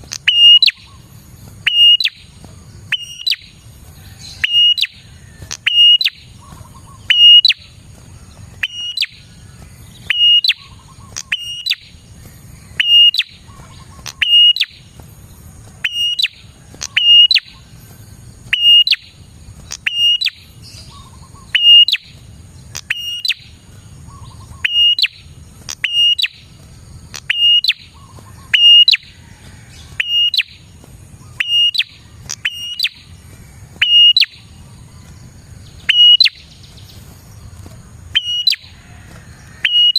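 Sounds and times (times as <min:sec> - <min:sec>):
bird calling sharp high phrase: 0:35.9 - 0:36.4.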